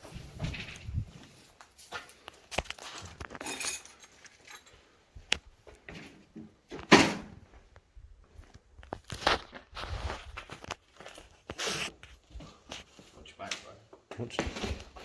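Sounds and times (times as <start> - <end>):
footsteps crunching over debris: 7.5 - 13.1.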